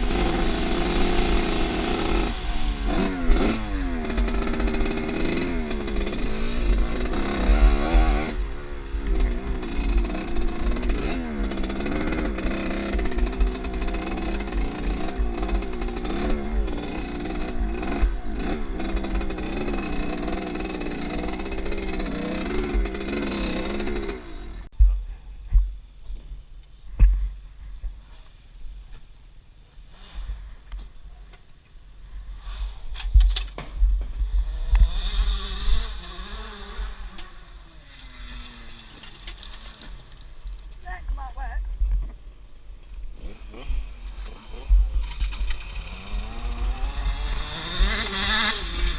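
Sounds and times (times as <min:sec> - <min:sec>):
motorcycle engine revving: 0:00.0 - 0:24.7, 0:32.6 - 0:40.7, 0:43.0 - 0:48.9.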